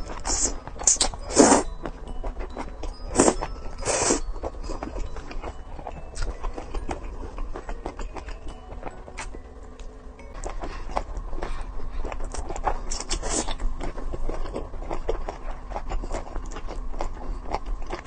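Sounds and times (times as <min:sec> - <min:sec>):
loud biting or slurping: 0:00.2 - 0:01.7.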